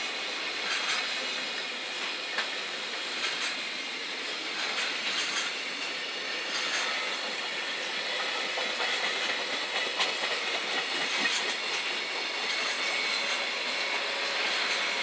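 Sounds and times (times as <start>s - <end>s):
train wheels rumbling on rail: 0.0s - 15.0s
wheels clacking over rail joints: 0.6s - 1.4s, 2.0s - 3.6s, 4.4s - 13.6s.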